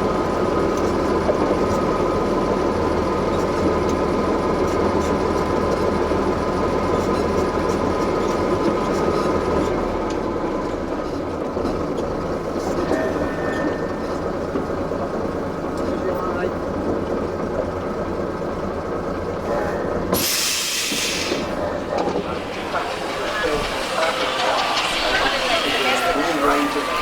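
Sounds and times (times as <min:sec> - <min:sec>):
heavy vehicle engines rumbling: 0:00.0 - 0:27.0
mechanical whine: 0:22.0 - 0:27.0.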